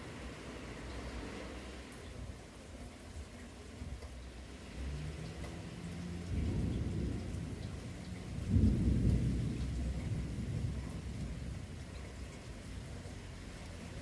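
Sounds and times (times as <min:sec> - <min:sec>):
rain: 0:00.0 - 0:14.0
thunder rumbling: 0:06.0 - 0:13.0.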